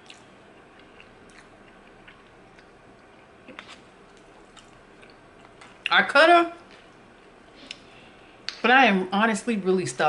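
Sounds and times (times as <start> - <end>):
person chewing pasta: 0.0 - 5.9.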